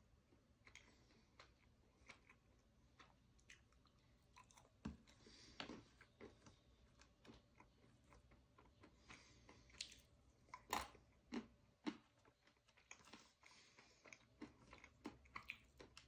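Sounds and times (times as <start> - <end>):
nuts crunching while chewed: 0.6 - 16.0.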